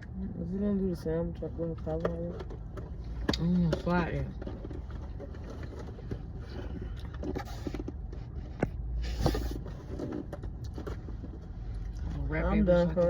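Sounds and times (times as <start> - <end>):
low steady rumble: 0.0 - 13.0
food packaging scraping and rustling: 2.4 - 12.1.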